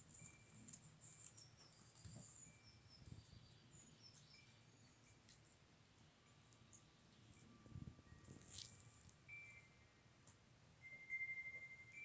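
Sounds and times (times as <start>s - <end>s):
faint bird chirps: 0.0s - 10.2s
whistled bird calls: 10.8s - 12.0s.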